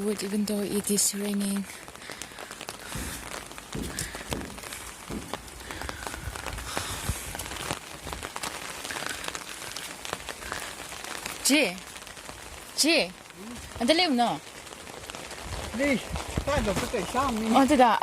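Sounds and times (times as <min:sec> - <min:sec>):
rain falling: 0:00.0 - 0:18.0
low thumps: 0:02.8 - 0:08.3.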